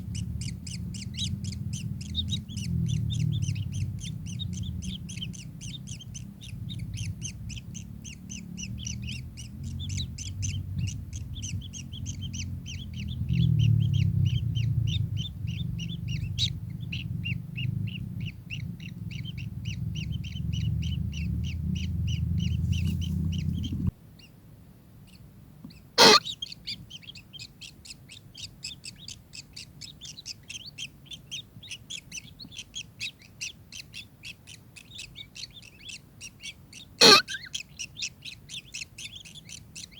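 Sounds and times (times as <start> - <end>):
low rumble: 0.0 - 24.0
kingfisher chirping: 0.0 - 24.3, 25.7 - 39.9.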